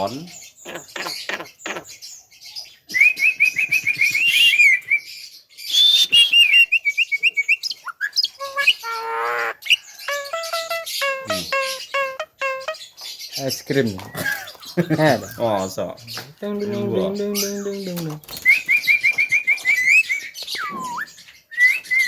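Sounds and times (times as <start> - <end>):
myna bird chirping: 0.0 - 22.0
harsh buzzy bird note: 10.1 - 12.8.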